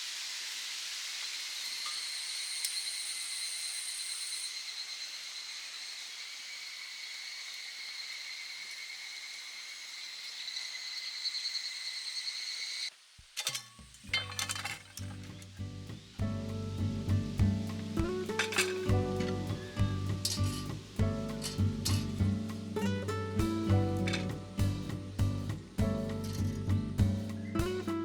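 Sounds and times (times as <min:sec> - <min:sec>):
steady hiss: 0:00.0 - 0:01.9, 0:12.8 - 0:28.0
cookware clinking: 0:13.4 - 0:15.4, 0:18.2 - 0:20.8
music with low beat: 0:16.2 - 0:28.0.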